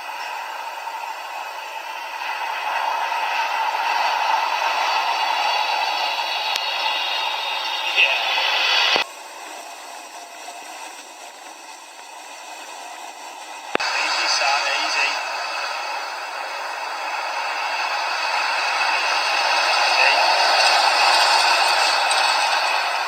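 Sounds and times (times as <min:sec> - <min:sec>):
radio hiss: 0:00.0 - 0:23.0
faint garbled radio voice: 0:06.6 - 0:09.0, 0:13.8 - 0:16.0, 0:19.6 - 0:21.6.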